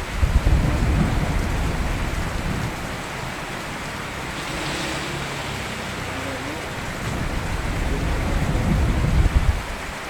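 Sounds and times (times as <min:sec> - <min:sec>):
low rumble of thunder: 0:00.0 - 0:03.3, 0:06.8 - 0:09.9
steady rain: 0:00.0 - 0:10.0.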